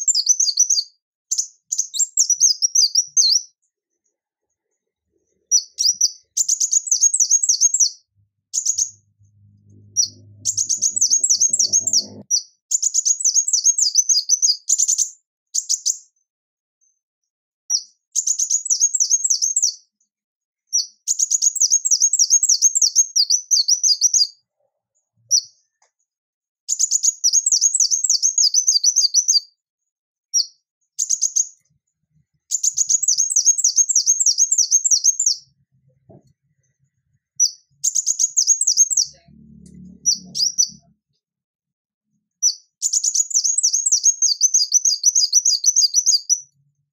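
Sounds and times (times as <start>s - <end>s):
sunbird twittering song: 5.5s - 16.0s, 37.4s - 40.8s, 42.4s - 46.5s.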